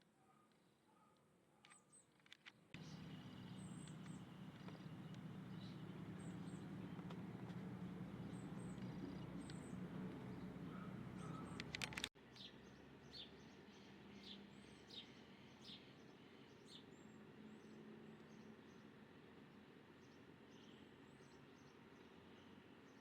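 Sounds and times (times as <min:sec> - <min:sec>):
low background hum: 0:02.8 - 0:12.1
sharp clicks: 0:02.8 - 0:12.1
small birds chirping: 0:02.8 - 0:15.9.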